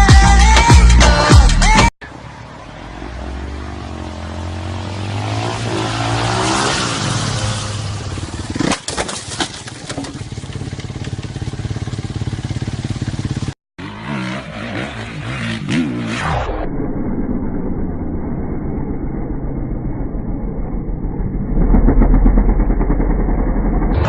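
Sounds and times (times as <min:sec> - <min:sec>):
motorcycle engine revving: 0:03.1 - 0:16.6, 0:20.7 - 0:24.0.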